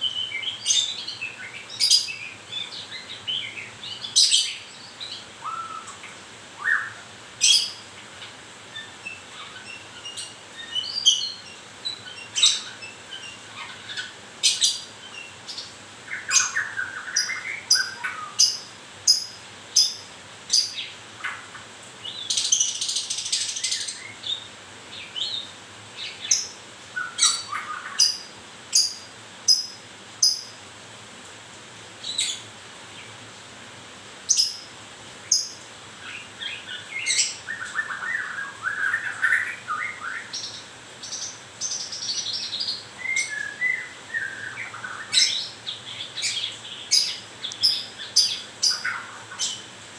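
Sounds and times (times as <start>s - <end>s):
bird whistled phrases: 37.0s - 40.3s, 43.0s - 45.5s.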